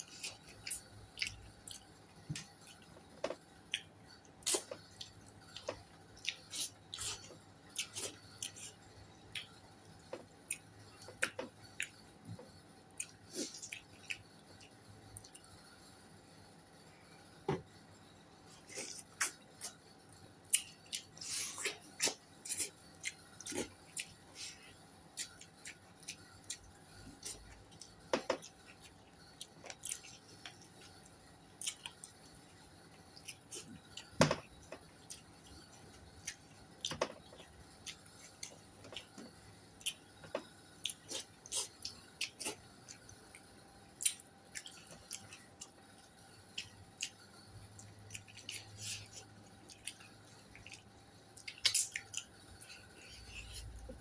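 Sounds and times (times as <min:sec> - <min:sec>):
person chewing wetly: 0:00.0 - 0:12.0, 0:13.0 - 0:15.5, 0:20.4 - 0:54.0.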